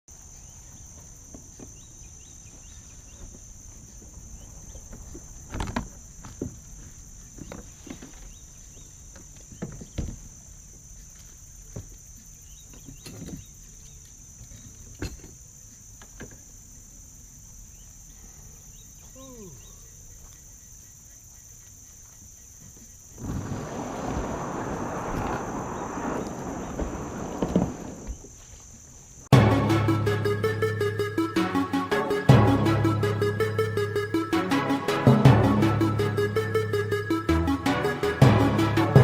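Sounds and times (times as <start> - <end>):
insects droning: 0.1 - 39.0
knocks and thumps: 26.7 - 28.3.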